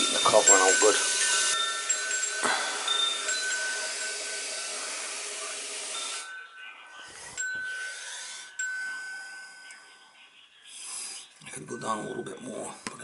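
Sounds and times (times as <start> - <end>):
toilet tank fill valve hissing: 0.0 - 6.2.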